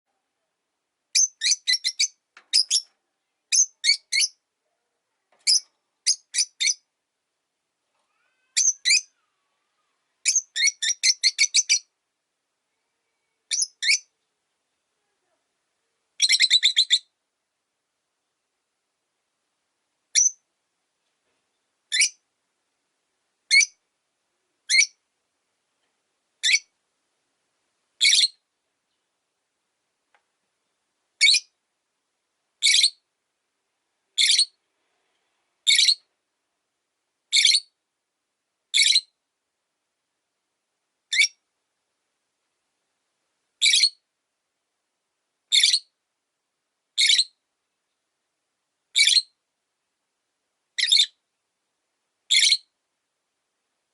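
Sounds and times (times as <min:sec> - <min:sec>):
lovebird chirps: 0:01.1 - 0:02.9, 0:03.5 - 0:04.4, 0:05.4 - 0:06.9, 0:08.3 - 0:09.2, 0:10.2 - 0:11.9, 0:13.1 - 0:14.1, 0:16.2 - 0:17.1, 0:20.1 - 0:20.4, 0:21.9 - 0:22.2, 0:23.5 - 0:23.8, 0:24.7 - 0:25.0, 0:26.4 - 0:26.7, 0:28.0 - 0:28.4, 0:31.2 - 0:31.6, 0:32.6 - 0:33.0, 0:34.2 - 0:34.6, 0:35.6 - 0:36.1, 0:37.3 - 0:37.8, 0:38.7 - 0:39.2, 0:41.1 - 0:41.4, 0:43.6 - 0:44.0, 0:45.5 - 0:45.9, 0:47.0 - 0:47.4, 0:48.9 - 0:49.4, 0:50.8 - 0:51.2, 0:52.3 - 0:52.7.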